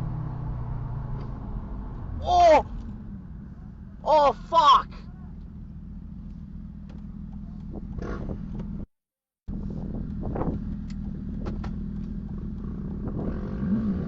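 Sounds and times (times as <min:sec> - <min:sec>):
car engine and road drone: 0:00.0 - 0:08.9, 0:09.5 - 0:14.0
voice-like sounds: 0:02.2 - 0:02.7, 0:04.0 - 0:05.3.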